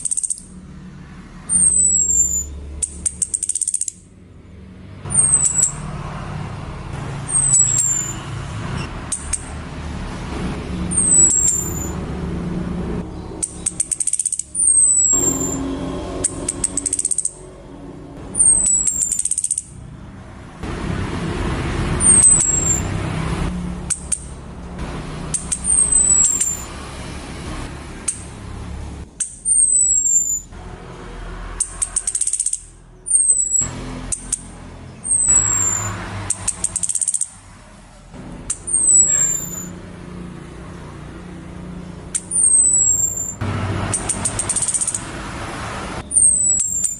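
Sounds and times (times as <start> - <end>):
high chattering bird bursts: 1.4 - 4.0, 5.1 - 5.9, 7.2 - 9.6, 10.8 - 12.0, 13.3 - 17.6, 18.3 - 19.8, 22.0 - 23.0, 25.3 - 26.7, 29.2 - 30.5, 31.6 - 37.4, 38.5 - 39.8, 42.2 - 45.2, 46.0 - 46.9.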